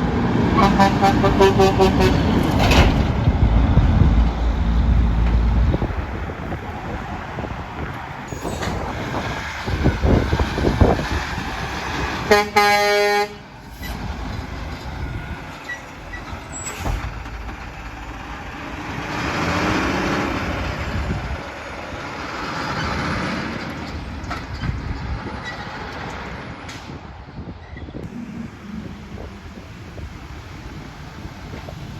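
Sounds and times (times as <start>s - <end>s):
heavy trucks passing: 0.0s - 31.9s
truck air horn blast: 0.5s - 2.8s, 12.1s - 14.0s.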